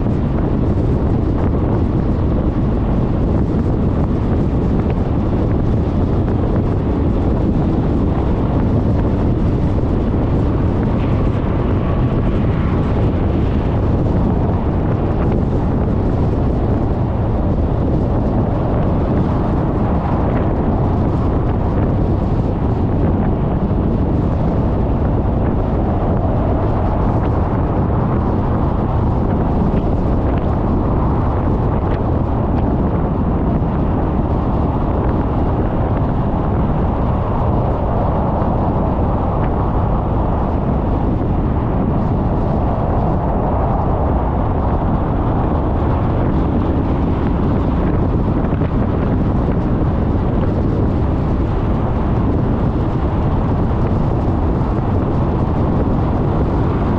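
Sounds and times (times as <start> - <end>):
wind on microphone: 0.0 - 56.9.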